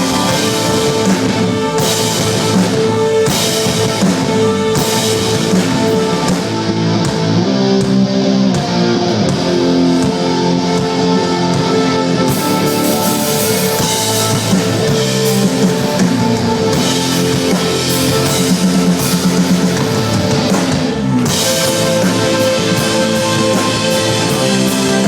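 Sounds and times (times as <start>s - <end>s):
drum kit with cymbals: 0.0s - 25.0s
electric guitar chords: 0.0s - 25.0s.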